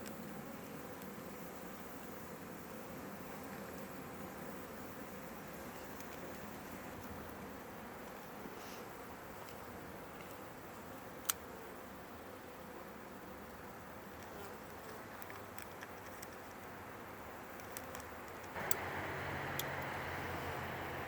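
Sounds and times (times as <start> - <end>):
bees buzzing: 18.6 - 21.0
mechanical rumble: 18.6 - 21.0.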